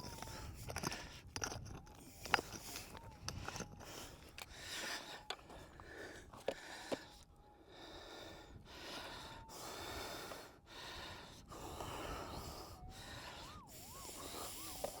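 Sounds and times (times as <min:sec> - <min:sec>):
person breathing hard: 0:03.5 - 0:15.0.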